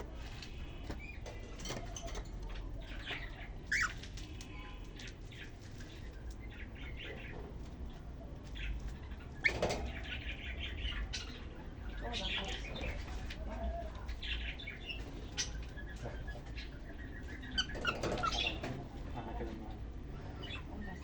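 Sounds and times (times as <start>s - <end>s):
cockatiels chirping: 2.0s - 7.5s, 8.4s - 18.8s.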